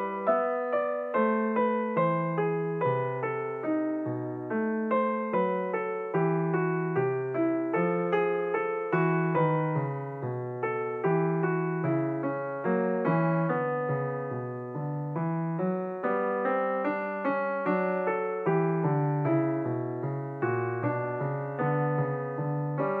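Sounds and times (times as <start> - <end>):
solo piano music: 0.0 - 23.0.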